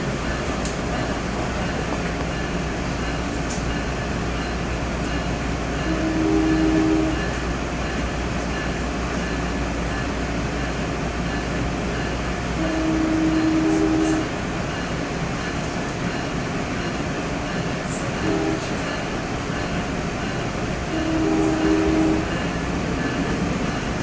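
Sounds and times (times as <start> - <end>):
train rumble inside carriage: 0.0 - 24.0
train horn blasts: 5.8 - 7.4, 12.6 - 14.3, 18.2 - 19.0, 20.9 - 22.5.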